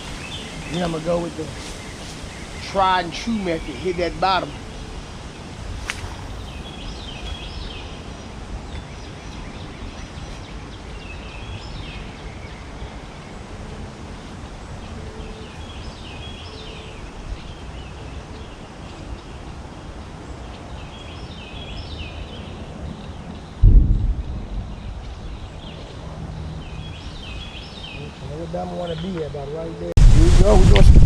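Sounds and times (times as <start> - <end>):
bird calling high notes: 0.0 - 4.8
wind on microphone rumble: 4.5 - 15.2, 15.8 - 27.9, 30.0 - 31.0.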